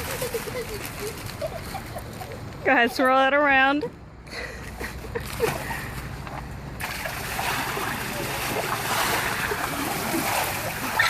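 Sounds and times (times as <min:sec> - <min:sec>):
ice water splashing and sloshing: 0:06.8 - 0:11.0.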